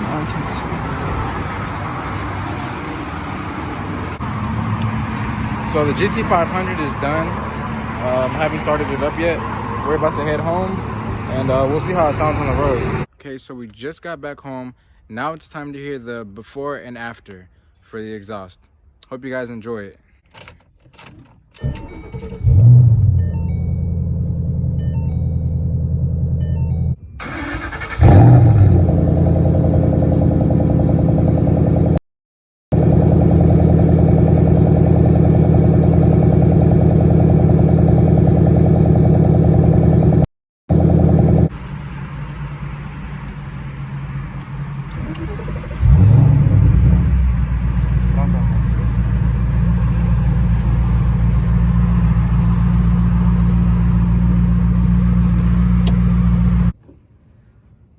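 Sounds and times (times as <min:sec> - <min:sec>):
car engine starting and revving: 0:21.6 - 0:32.0, 0:32.8 - 0:42.0, 0:44.5 - 0:56.8
car engine rumbling idle: 0:32.8 - 0:41.5.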